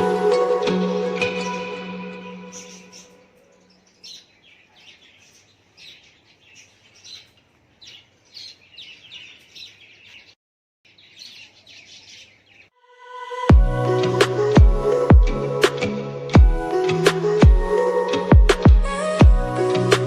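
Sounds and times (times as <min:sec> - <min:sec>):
small birds chirping: 0:01.2 - 0:12.8
loud music: 0:13.5 - 0:20.0.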